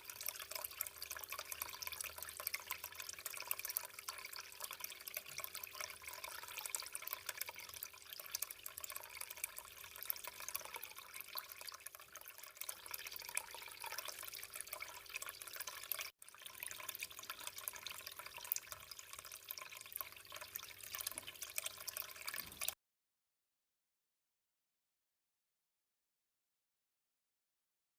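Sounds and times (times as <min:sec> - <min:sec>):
water trickling and splashing: 0:00.0 - 0:22.8.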